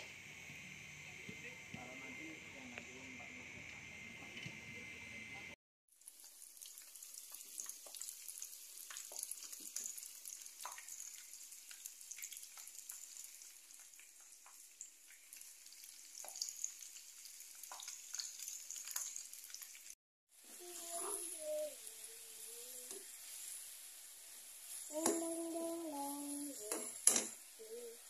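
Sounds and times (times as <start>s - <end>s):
food frying in hot oil: 5.9s - 28.0s.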